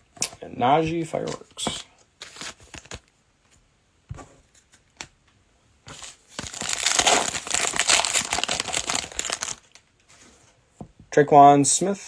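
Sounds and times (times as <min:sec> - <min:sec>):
plastic wrapper crinkling and tearing: 0:06.0 - 0:09.9.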